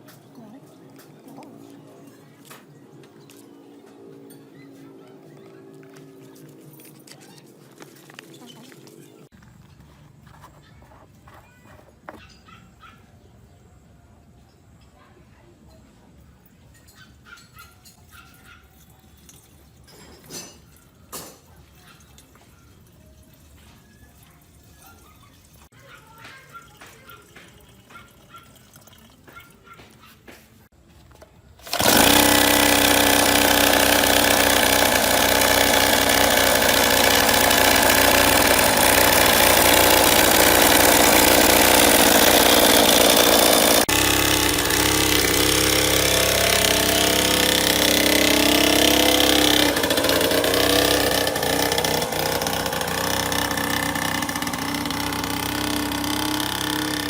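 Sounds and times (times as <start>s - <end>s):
two-stroke engine running: 31.6s - 57.0s.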